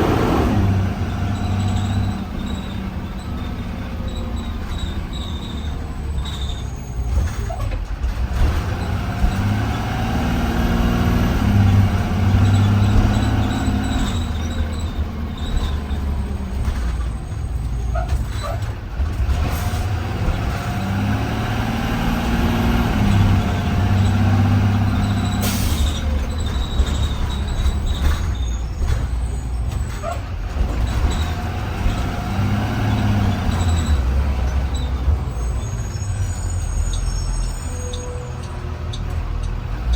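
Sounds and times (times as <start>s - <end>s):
bus engine accelerating: 0.0s - 39.9s
air brakes hissing: 24.9s - 30.0s, 34.7s - 39.0s.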